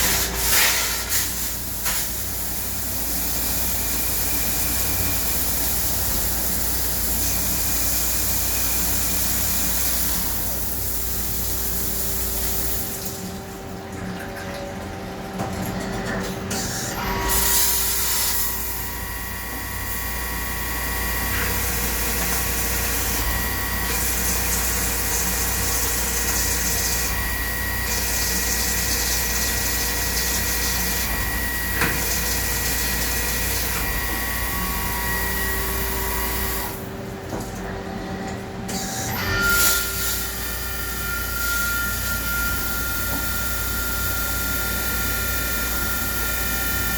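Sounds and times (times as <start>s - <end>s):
lathe machining with whining tones: 16.5s - 46.9s.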